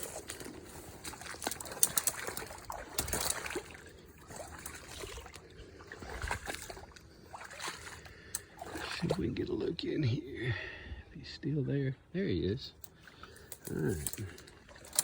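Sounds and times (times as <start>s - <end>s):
footsteps through wet brush: 0.0s - 9.1s.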